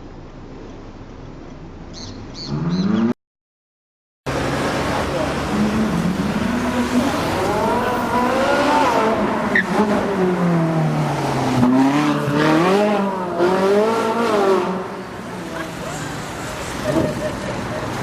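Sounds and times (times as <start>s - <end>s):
car engine revving hard: 4.3s - 15.0s.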